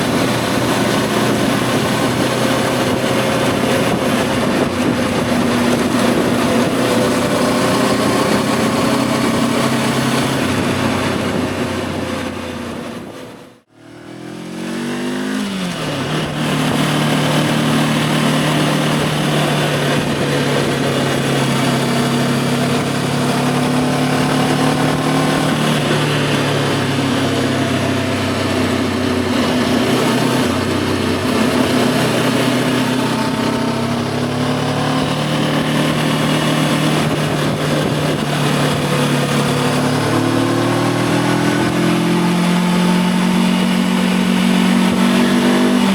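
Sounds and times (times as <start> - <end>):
wind rush: 0.0 - 13.5, 15.4 - 45.9
motorcycle engine cruising: 0.0 - 45.9.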